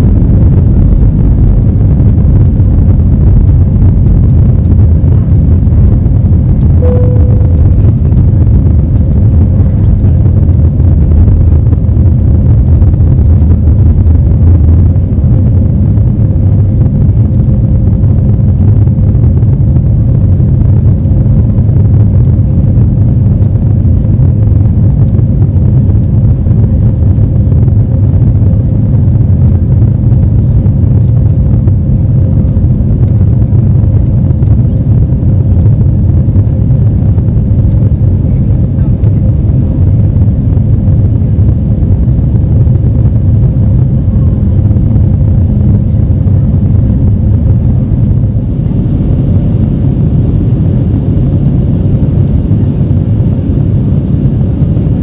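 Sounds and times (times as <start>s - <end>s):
jet engine cabin rumble: 0.0s - 55.0s
faint thin tone: 6.8s - 7.6s.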